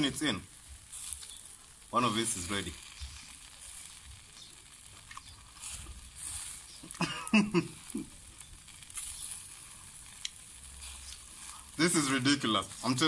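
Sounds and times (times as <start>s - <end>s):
meat sizzling on grill: 0.0s - 13.0s
man making sound of enjoyment: 6.8s - 8.2s.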